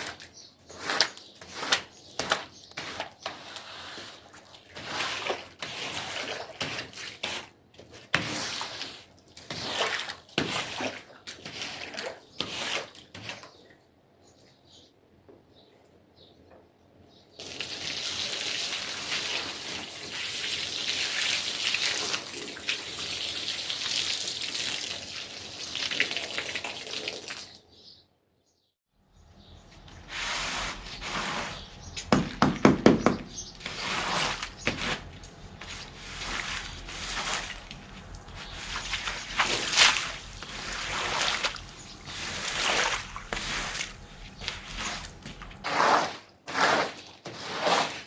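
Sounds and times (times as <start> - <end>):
splashing and swishing on rug: 0.0 - 13.5, 17.4 - 27.5, 33.6 - 48.0.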